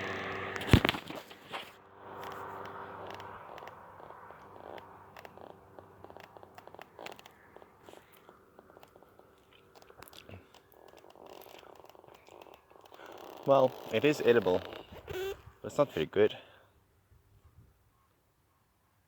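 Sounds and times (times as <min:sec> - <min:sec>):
person chewing crunchy fruit: 0:01.4 - 0:13.5.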